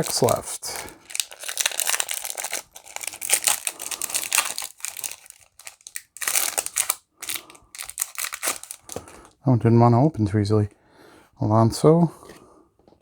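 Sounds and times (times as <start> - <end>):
wrapper crinkling and tearing: 0.0 - 9.3.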